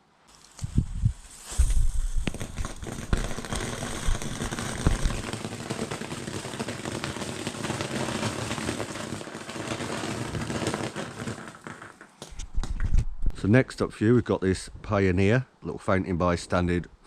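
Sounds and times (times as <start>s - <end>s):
firework crackles: 0.3s - 13.1s
firework fountain hissing: 0.5s - 12.4s
low thumps: 0.7s - 5.3s.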